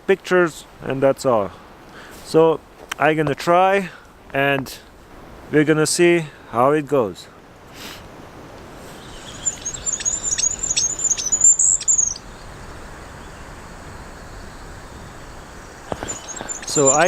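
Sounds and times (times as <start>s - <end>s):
faint steady hiss: 0.0s - 17.0s
bird song through phone speaker: 9.0s - 12.2s, 15.9s - 17.0s.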